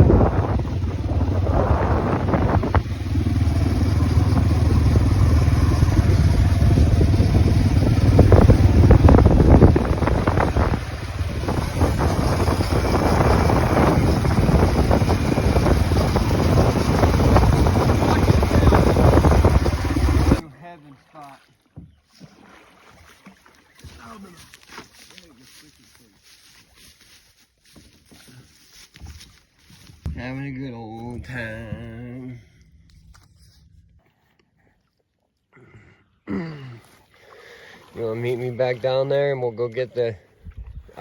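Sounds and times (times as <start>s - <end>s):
wind buffeting microphone: 0.0s - 20.4s, 40.4s - 41.0s.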